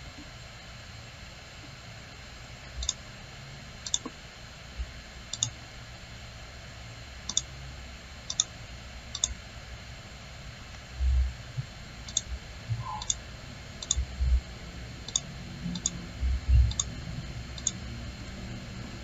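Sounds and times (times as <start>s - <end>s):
faint low hum: 0.0s - 19.0s
computer mouse clicking: 2.7s - 3.0s, 3.8s - 4.2s, 5.3s - 5.6s, 7.3s - 7.5s, 8.3s - 8.5s, 9.1s - 9.4s, 12.0s - 13.2s, 13.8s - 14.1s, 15.0s - 16.0s, 16.6s - 16.9s, 17.6s - 17.8s.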